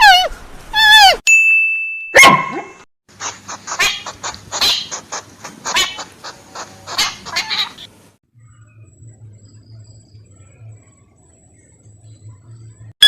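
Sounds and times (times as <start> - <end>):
animal sharp cry: 3.2 - 7.9.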